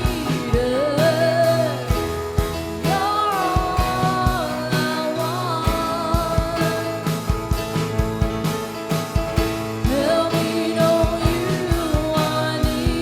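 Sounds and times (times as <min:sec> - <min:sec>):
drum beats: 0:00.0 - 0:13.0
worship band playing slow song: 0:00.0 - 0:13.0.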